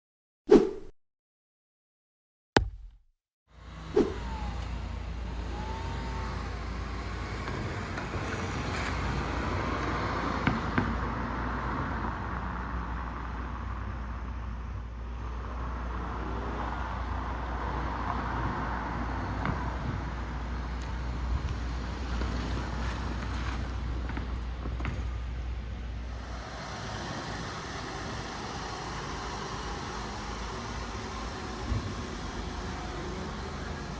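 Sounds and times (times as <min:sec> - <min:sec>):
short sharp knock: 0:02.6 - 0:03.1
car engine running: 0:03.6 - 0:10.2, 0:20.2 - 0:24.6, 0:25.8 - 0:33.9.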